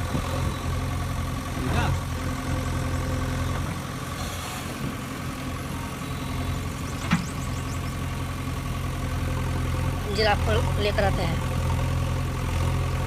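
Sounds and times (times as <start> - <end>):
toy engine idling hum: 5.5 - 9.0.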